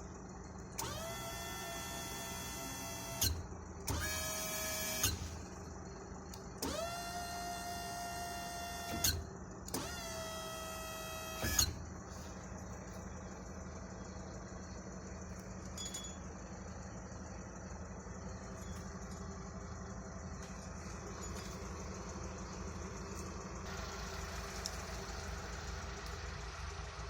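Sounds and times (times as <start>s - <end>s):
steady low hum: 0.0s - 27.0s
hydraulic pump motor whining: 0.8s - 5.6s, 6.5s - 13.2s
tail lift clunk: 6.6s - 12.0s.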